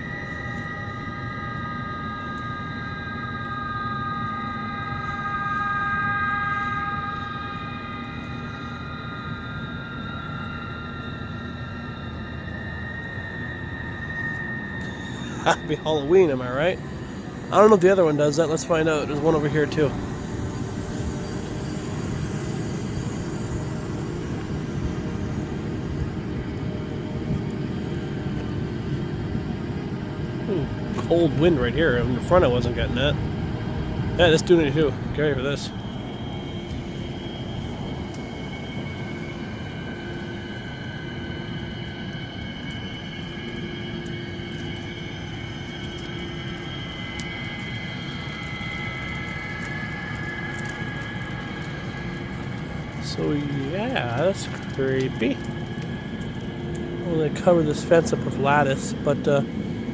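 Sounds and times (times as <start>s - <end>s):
wind whistling through door gaps: 30.7s - 57.9s.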